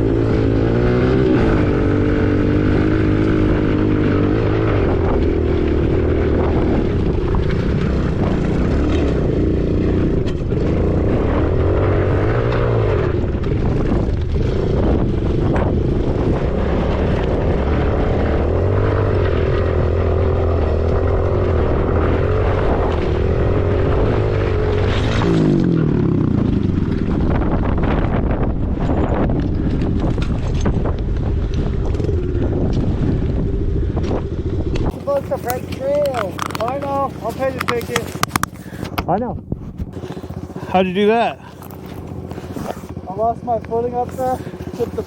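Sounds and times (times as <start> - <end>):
dirt bike engine revving: 0.0 - 45.0
wind buffeting microphone: 0.0 - 45.0.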